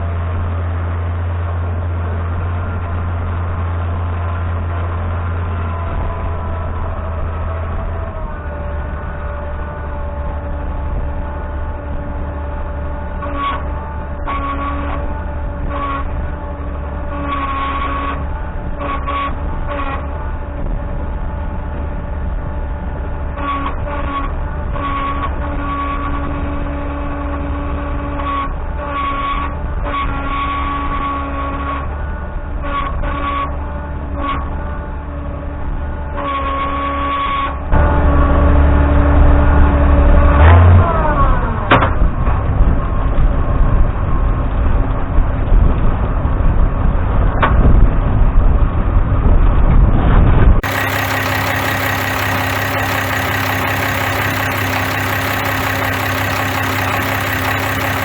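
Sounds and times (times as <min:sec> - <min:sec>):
diesel engine running: 0:50.6 - 0:58.0
falling whine: 0:50.6 - 0:58.0.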